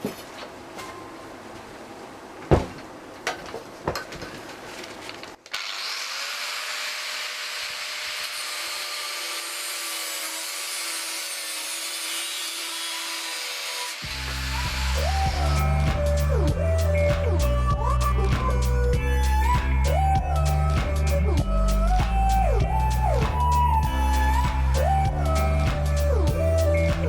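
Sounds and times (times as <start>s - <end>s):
power tool grinding steel: 5.5s - 27.0s.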